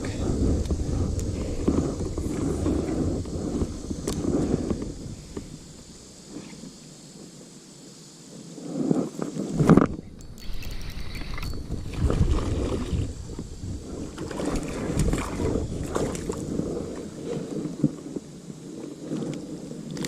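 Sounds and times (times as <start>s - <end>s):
wind buffeting microphone: 0.0s - 7.6s, 8.4s - 20.0s
water sloshing and gurgling: 9.7s - 18.1s.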